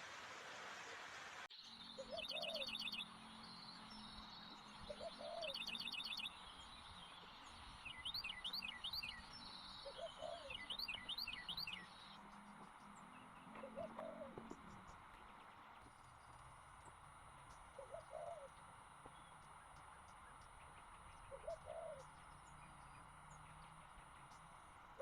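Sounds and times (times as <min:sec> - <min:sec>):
dove cooing: 0:02.0 - 0:03.0, 0:04.8 - 0:06.2, 0:09.8 - 0:11.0, 0:13.5 - 0:15.0, 0:17.6 - 0:18.9, 0:21.2 - 0:23.3.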